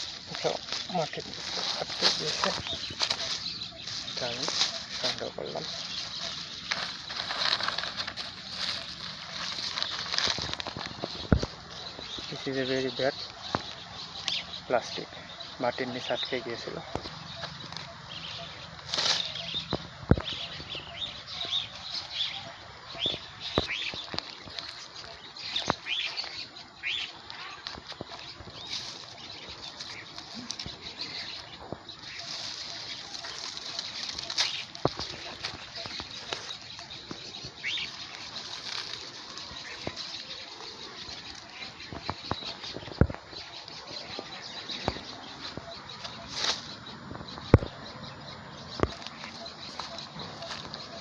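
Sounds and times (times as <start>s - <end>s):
plastic rustling and crinkling: 0.0s - 14.4s, 23.0s - 43.8s
small birds chirping: 0.0s - 51.0s.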